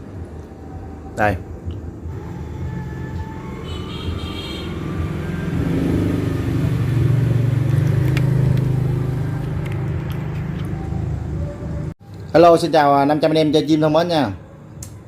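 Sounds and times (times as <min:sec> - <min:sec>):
vehicle engine passing: 0:02.1 - 0:11.9.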